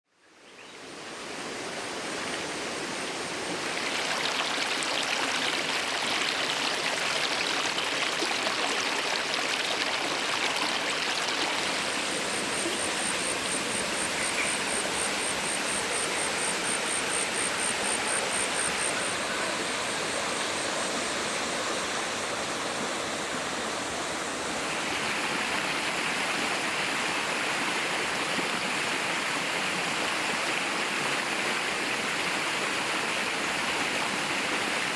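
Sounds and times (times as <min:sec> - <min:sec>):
waterfall rushing over rocks: 0:01.3 - 0:15.8.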